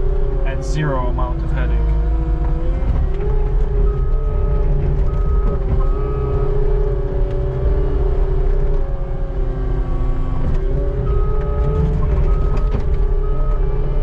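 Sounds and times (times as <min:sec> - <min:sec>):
constant whine: 0:00.0 - 0:14.0
skid steer engine rumble: 0:00.0 - 0:14.0
higher tone: 0:00.4 - 0:06.8.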